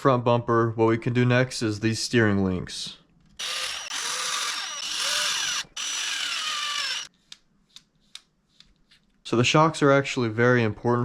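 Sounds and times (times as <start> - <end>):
cordless power driver running: 3.4 - 7.1.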